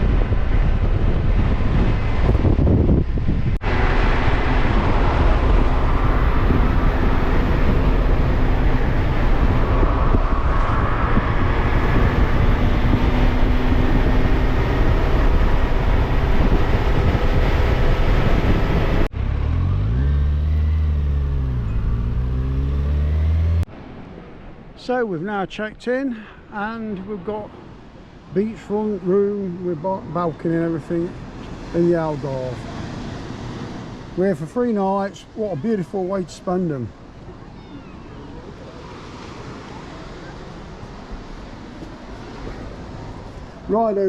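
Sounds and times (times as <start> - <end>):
wind and road noise: 0.0 - 44.0
motorcycle engine revving: 3.6 - 23.7.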